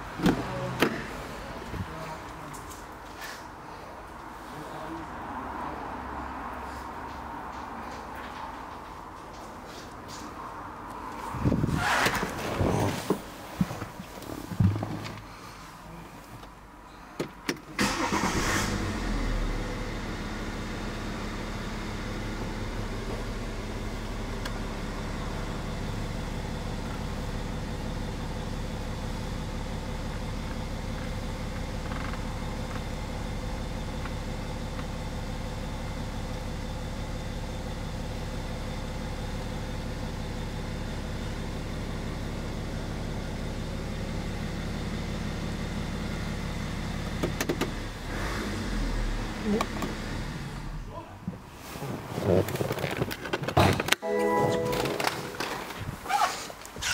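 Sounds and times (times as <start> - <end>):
car engine starting and idling: 17.3 - 51.0, 51.6 - 56.9.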